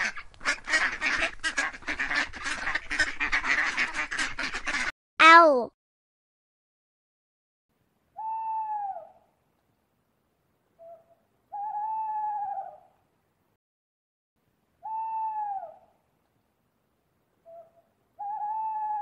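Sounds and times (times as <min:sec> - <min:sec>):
owl hooting: 0:08.2 - 0:09.2, 0:10.8 - 0:12.9, 0:14.8 - 0:15.9, 0:17.4 - 0:19.0.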